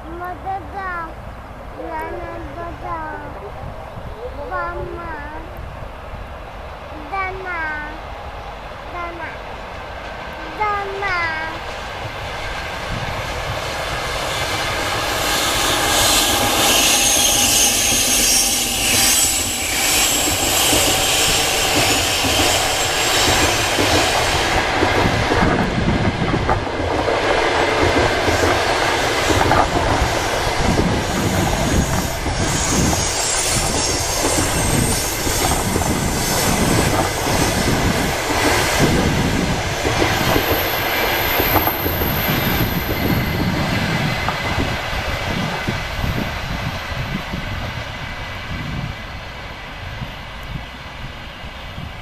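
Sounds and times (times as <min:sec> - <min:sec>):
train wheels on rails: 0:00.0 - 0:52.0
clickety-clack over rail joints: 0:09.0 - 0:48.9.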